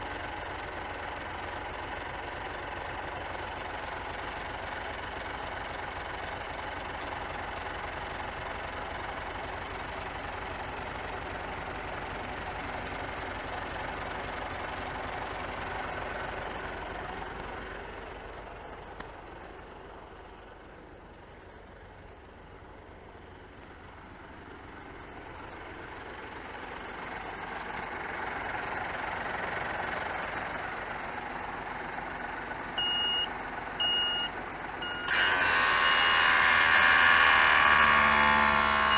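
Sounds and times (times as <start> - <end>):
diesel truck idling: 0.0 - 38.9
reversing beeper: 32.8 - 36.5, 38.4 - 38.9.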